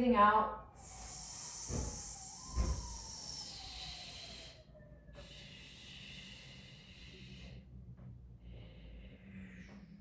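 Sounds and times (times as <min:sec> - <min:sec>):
person breathing out with hissing: 0:00.8 - 0:07.7.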